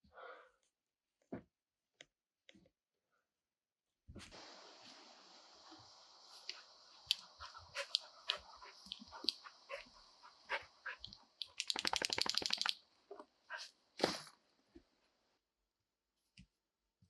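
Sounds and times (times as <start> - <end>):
steady background hiss: 4.3 - 14.4
rapid flapping rattle: 7.0 - 12.8
clicks and taps: 11.0 - 12.8.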